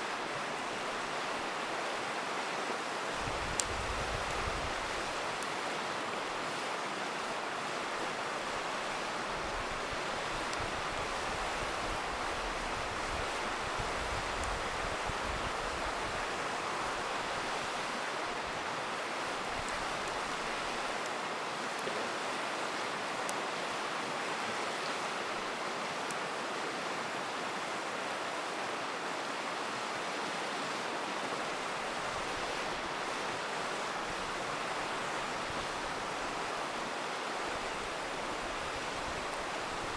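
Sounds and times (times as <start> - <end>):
river rushing: 0.0 - 39.9
campfire crackling pops: 3.3 - 4.5.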